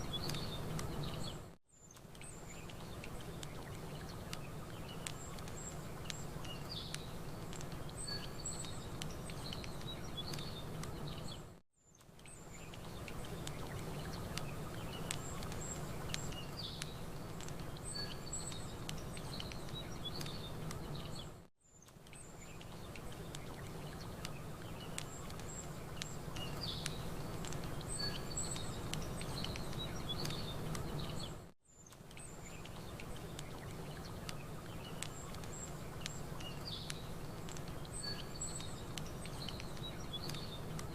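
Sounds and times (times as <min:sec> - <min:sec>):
campfire crackling: 0:00.0 - 0:40.9
small birds chirping: 0:00.0 - 0:40.9.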